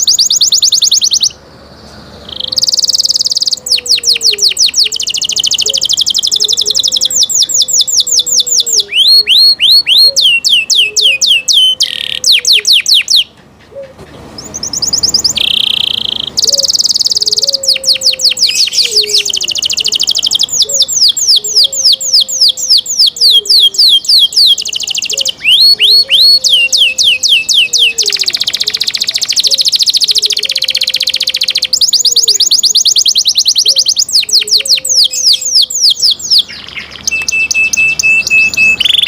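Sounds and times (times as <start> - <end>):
canary singing trills: 0.0 - 39.0.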